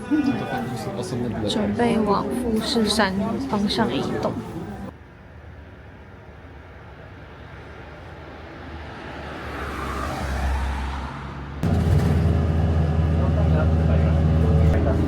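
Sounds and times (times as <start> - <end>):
road vehicle passing: 6.7 - 15.0
steady low hum: 11.6 - 15.0.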